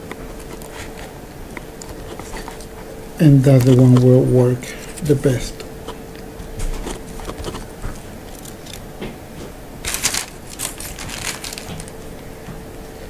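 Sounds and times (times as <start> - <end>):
cables being handled rustling: 0.0 - 12.6
crinkling rustle: 6.8 - 12.3.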